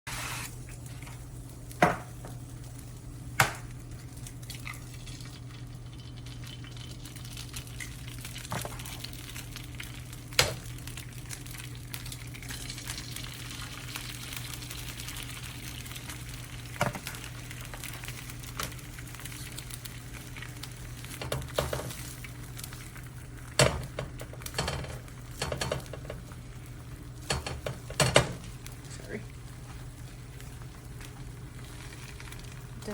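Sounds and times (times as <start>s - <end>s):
eggs sizzling on griddle: 0.1s - 32.9s
steady low hum: 0.5s - 32.9s.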